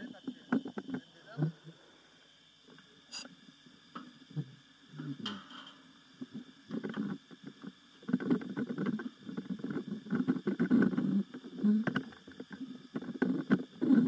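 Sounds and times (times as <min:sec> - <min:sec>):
radio crackle: 0:00.0 - 0:01.6, 0:06.2 - 0:14.0
underwater bubbles gurgling: 0:06.0 - 0:14.0.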